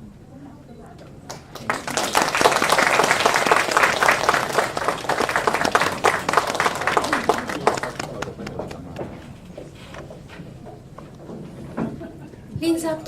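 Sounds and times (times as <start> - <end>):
audience applauding: 1.3 - 9.3.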